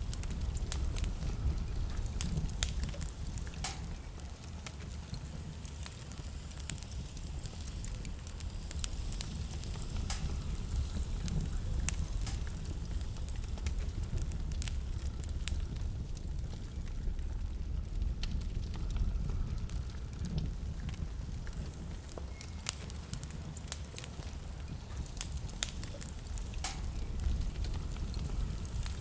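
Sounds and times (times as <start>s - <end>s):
fire crackling and popping: 0.0s - 29.0s
low rumble of flames: 0.0s - 29.0s.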